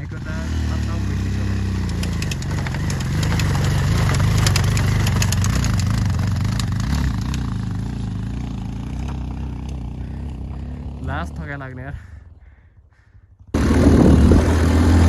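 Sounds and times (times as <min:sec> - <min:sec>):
motorcycle engine under load: 0:00.0 - 0:11.7, 0:13.5 - 0:15.0
sharp clicks and rattles: 0:01.0 - 0:08.0.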